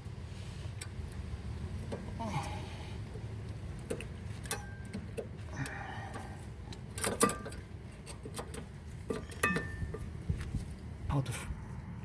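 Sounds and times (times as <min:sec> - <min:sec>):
metal clicks and clinks: 0:07.0 - 0:09.8.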